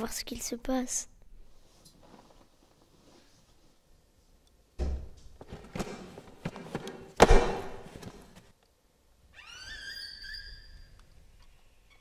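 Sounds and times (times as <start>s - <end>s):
high squeak: 9.4s - 11.0s.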